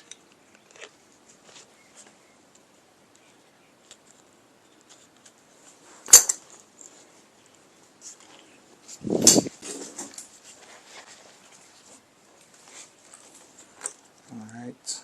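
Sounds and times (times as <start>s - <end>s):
small clicks and handling noises: 0.0s - 10.4s, 11.0s - 14.7s
tools clunking and clattering: 6.0s - 6.6s, 9.2s - 10.3s
metallic click: 6.1s - 6.4s, 9.2s - 9.5s.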